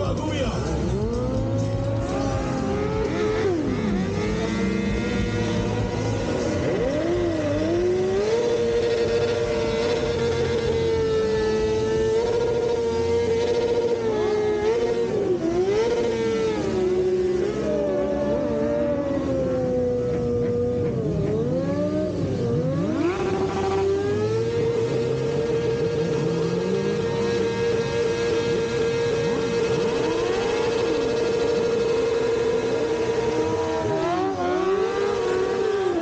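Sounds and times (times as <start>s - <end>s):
motorcycle engines revving: 0.0s - 36.0s.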